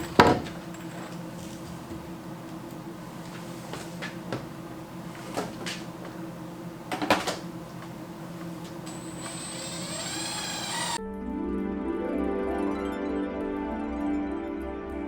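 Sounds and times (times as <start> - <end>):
lumber and tools knocking: 0.0 - 1.2
steady low hum: 0.0 - 11.0
music: 11.0 - 15.0.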